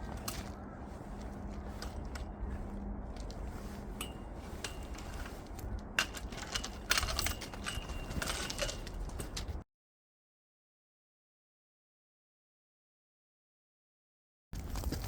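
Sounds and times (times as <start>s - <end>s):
low background rumble: 0.0s - 9.6s
small hard objects clinking: 4.0s - 9.6s.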